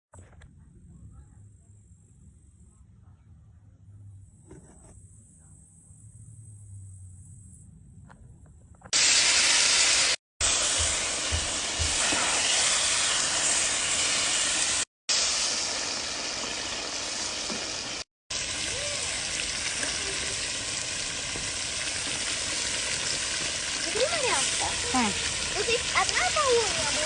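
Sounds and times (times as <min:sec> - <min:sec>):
meat and vegetables sizzling: 0:09.0 - 0:27.0.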